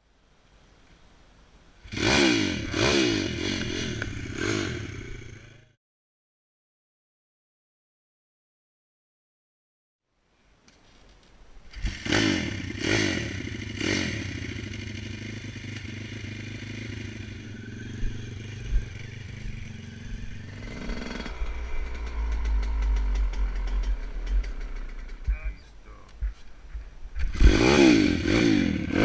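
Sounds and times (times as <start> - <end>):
dirt bike engine revving: 1.8 - 5.8, 11.7 - 25.7, 27.2 - 29.0
deep low rumble: 17.4 - 27.1.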